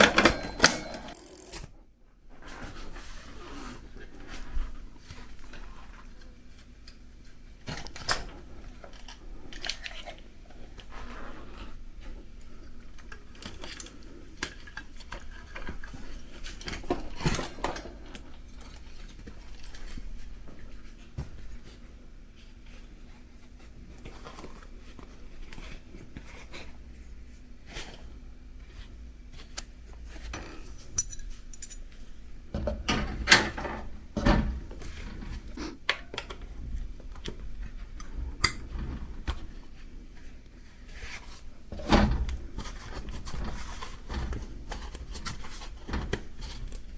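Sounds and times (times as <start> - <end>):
hand tools clinking on bicycle: 0.0 - 1.6, 30.3 - 32.0.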